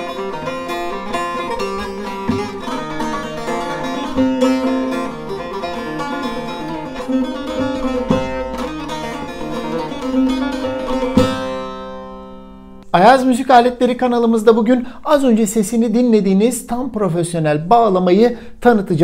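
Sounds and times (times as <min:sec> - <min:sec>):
plucked lute notes with drone: 0:00.0 - 0:12.9.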